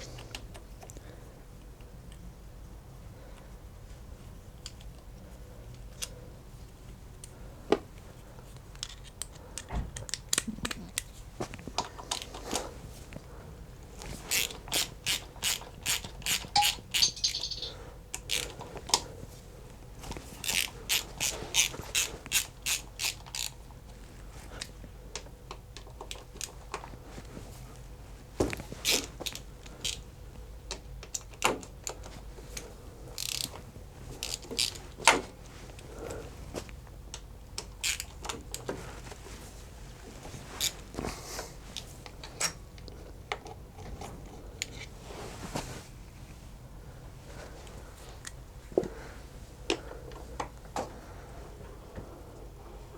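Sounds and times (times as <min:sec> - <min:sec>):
socket ratchet clicking: 0:14.3 - 0:17.7, 0:20.5 - 0:23.5.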